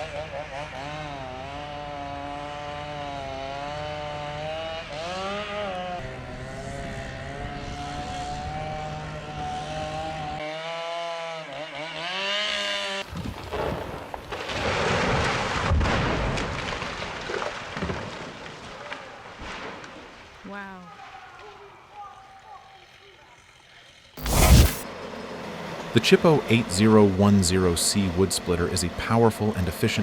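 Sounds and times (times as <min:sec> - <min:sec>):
chainsaw cutting wood: 0:00.0 - 0:13.1, 0:24.2 - 0:24.8.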